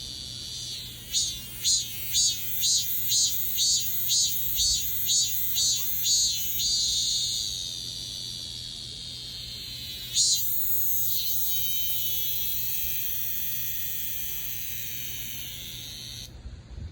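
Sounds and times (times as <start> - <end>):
cicada buzzing: 0.0 - 16.4.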